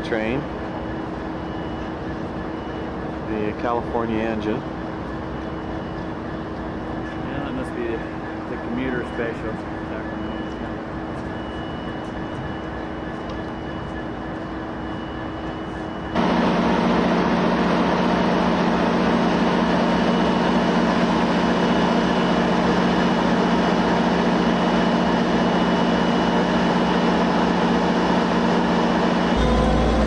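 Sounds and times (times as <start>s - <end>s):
diesel locomotive engine drone: 0.0s - 30.0s.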